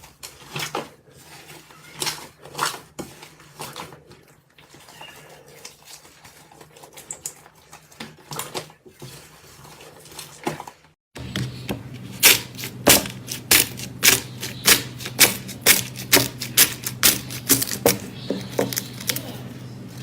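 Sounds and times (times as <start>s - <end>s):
steady low hum: 11.2s - 20.0s.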